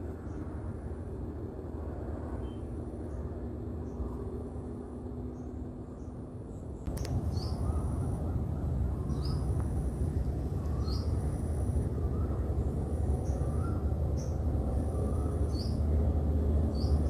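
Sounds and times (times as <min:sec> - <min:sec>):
steady low rumble: 0:00.0 - 0:17.0
bird calling: 0:13.2 - 0:15.8.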